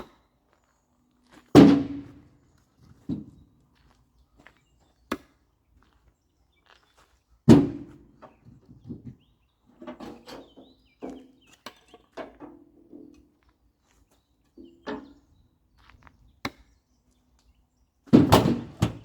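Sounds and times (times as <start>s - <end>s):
log landing thunk: 18.1s - 19.0s.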